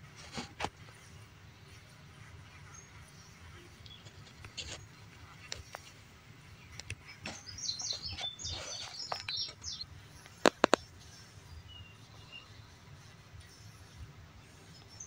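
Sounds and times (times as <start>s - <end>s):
small birds chirping: 0.9s - 15.0s.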